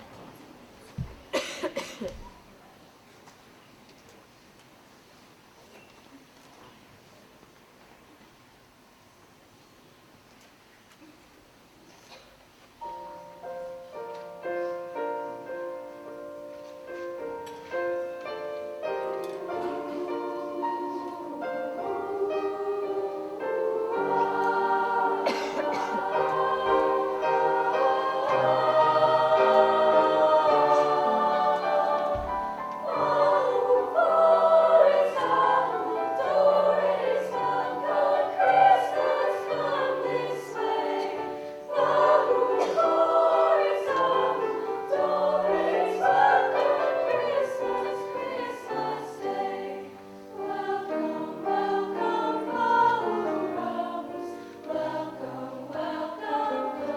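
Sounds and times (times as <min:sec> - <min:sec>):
vocal ensemble singing in harmony: 0:18.7 - 0:56.9.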